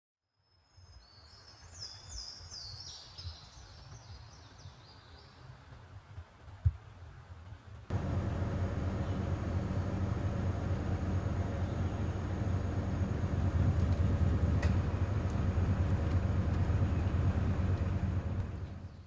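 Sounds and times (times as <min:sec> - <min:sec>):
steady rushing noise: 0:07.9 - 0:18.9
low rumble: 0:07.9 - 0:19.0
songbird singing: 0:07.9 - 0:19.0.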